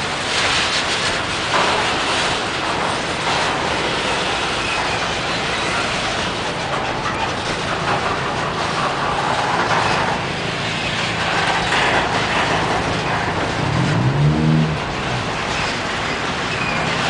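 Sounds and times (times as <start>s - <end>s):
freight train wheels on rails: 0.0s - 17.0s
engine rising in pitch: 13.4s - 16.0s.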